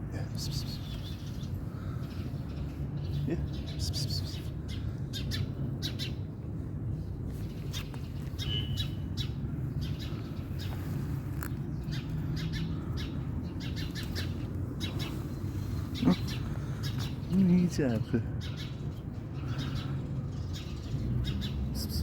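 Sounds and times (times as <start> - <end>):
small birds alarm chirps: 0.2 - 6.4, 7.4 - 22.0
steady low rumble: 3.7 - 21.1.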